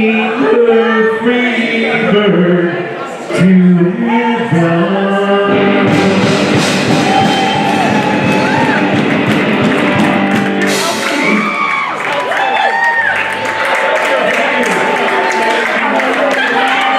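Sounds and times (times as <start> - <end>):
rock song with singing: 0.0 - 11.9.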